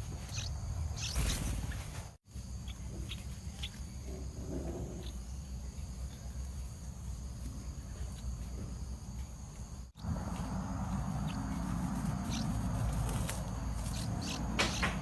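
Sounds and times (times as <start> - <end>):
steady low rumble: 9.9 - 14.4.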